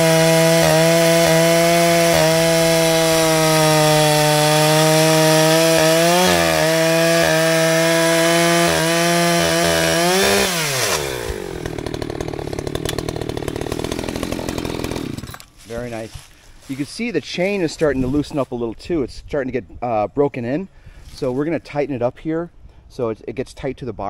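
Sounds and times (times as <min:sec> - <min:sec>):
chainsaw cutting wood: 0:00.0 - 0:16.8.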